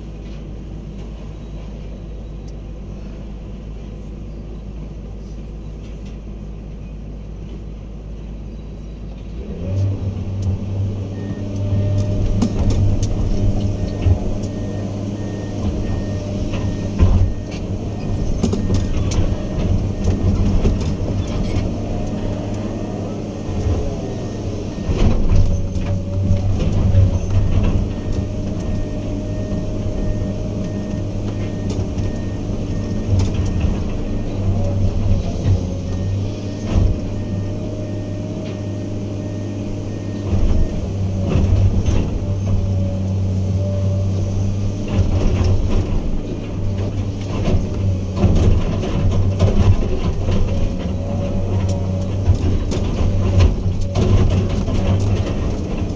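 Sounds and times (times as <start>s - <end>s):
heavy diesel engine running: 0.0s - 55.9s
clanks and knocks: 15.6s - 22.6s, 24.8s - 36.0s, 44.9s - 55.9s.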